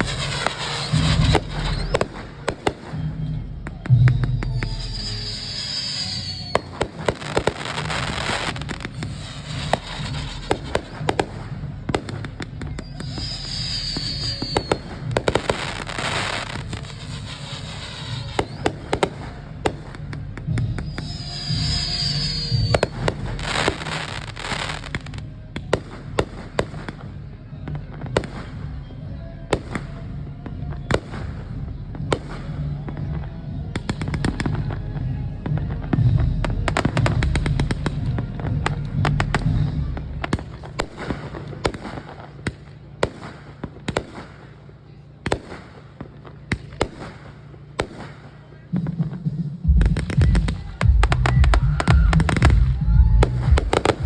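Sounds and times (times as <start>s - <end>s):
fireworks bangs and crackles: 0.0s - 54.0s
low rumble of booms: 49.6s - 54.0s.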